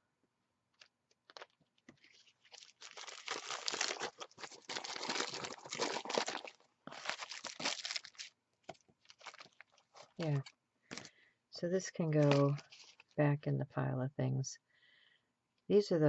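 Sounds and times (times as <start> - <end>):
crumpled material crackling: 0.8 - 11.1, 12.0 - 13.2.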